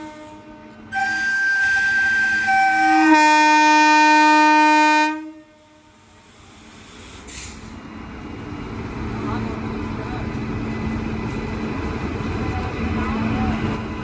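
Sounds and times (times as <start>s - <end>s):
locomotive horn blast: 0.0s - 6.0s
low train rumble: 0.0s - 14.0s
short hiss: 6.2s - 7.8s.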